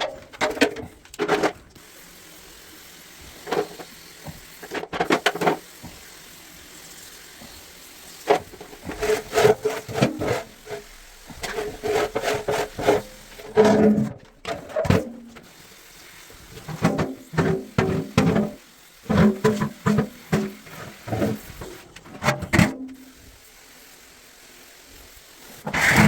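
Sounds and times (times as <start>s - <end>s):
knocks scrapes and rubbing: 8.3s - 15.4s, 16.6s - 22.9s, 25.7s - 26.0s.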